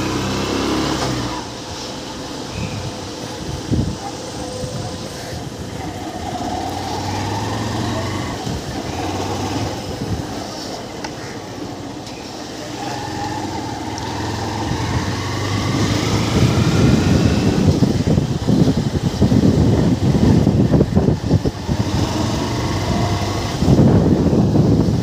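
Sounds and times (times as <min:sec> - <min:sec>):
motorcycle engine accelerating: 0:00.0 - 0:01.6, 0:05.6 - 0:10.3, 0:12.7 - 0:25.0.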